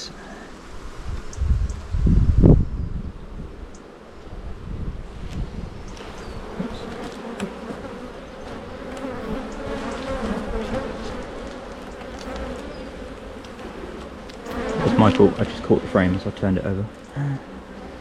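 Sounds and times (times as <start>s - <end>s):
honey bees buzzing: 0.0s - 18.0s.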